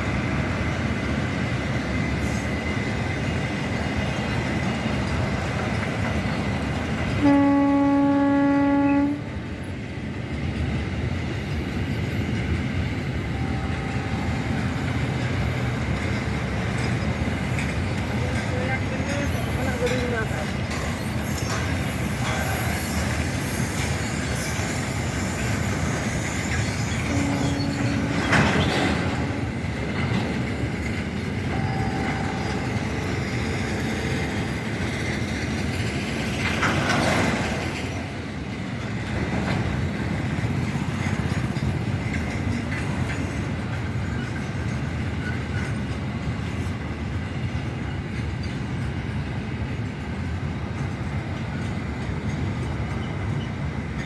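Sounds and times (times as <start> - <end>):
freight train rumbling: 0.0 - 54.0
brief tones: 31.5 - 32.8.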